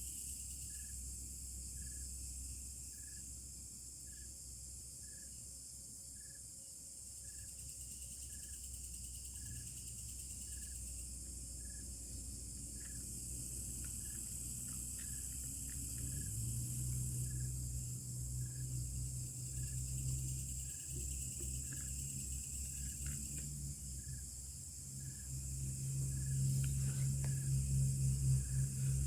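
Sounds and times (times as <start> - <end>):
insect chorus chirring: 0.0 - 29.0
low steady drone: 8.8 - 29.0.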